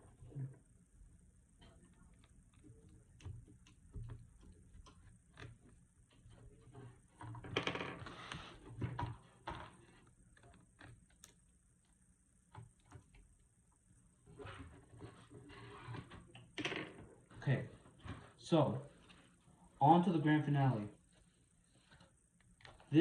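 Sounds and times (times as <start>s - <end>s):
rustling and scraping: 5.0s - 11.2s, 14.1s - 19.8s, 20.8s - 23.0s.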